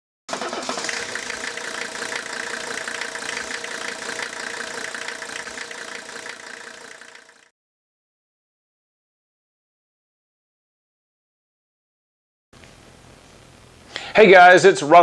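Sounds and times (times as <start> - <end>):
engine idling with clatter: 0.3 - 7.5.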